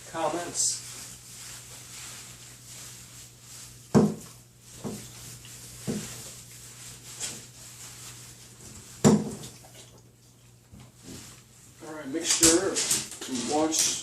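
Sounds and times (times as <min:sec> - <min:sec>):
knocks against a bathtub: 0:03.9 - 0:05.0, 0:09.0 - 0:09.6.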